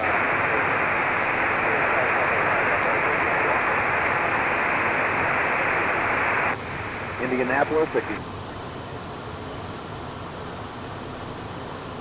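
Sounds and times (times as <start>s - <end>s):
radio static hiss: 0.0s - 8.3s.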